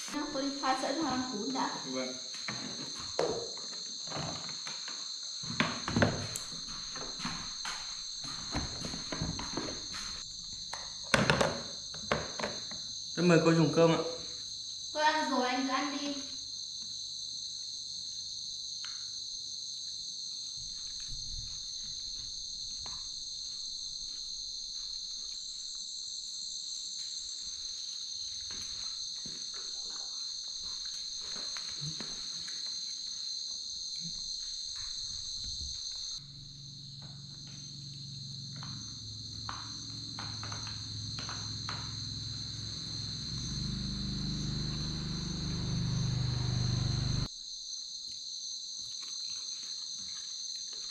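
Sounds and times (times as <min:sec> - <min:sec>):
crickets trilling: 0:00.0 - 0:50.9
low hum: 0:36.2 - 0:47.3.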